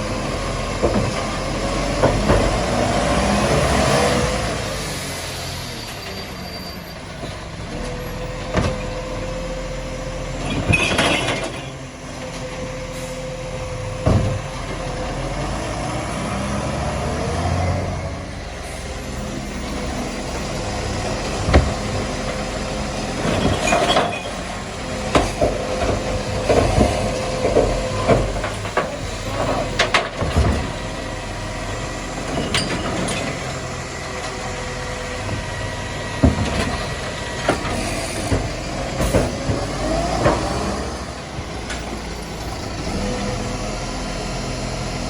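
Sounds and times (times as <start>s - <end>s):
garbage truck whine: 0.0s - 45.0s.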